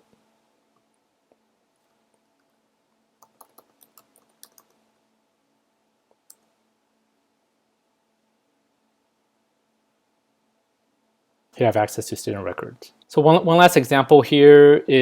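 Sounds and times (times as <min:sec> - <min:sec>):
faint steady hum: 0:00.0 - 0:15.0
computer mouse clicks: 0:03.2 - 0:04.8, 0:06.1 - 0:06.5.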